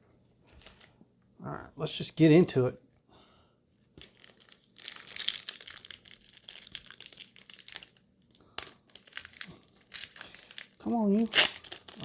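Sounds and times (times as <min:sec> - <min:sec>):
foil wrapper crinkling and tearing: 0:04.0 - 0:12.0
sharp crackle of foil: 0:04.0 - 0:12.0.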